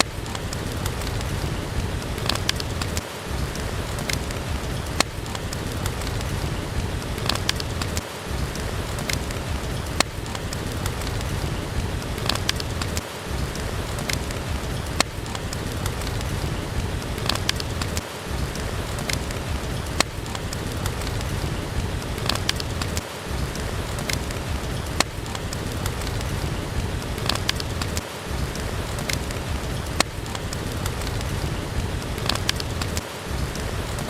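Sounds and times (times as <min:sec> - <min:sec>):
steady rain: 0:00.0 - 0:34.0
wood fire crackling and popping: 0:00.0 - 0:34.0.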